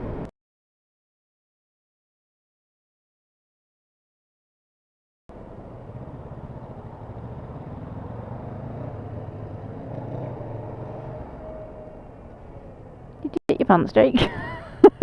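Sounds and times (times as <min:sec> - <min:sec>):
wind and road noise: 0:00.0 - 0:00.3, 0:05.3 - 0:15.0
motorcycle engine running: 0:05.3 - 0:13.3.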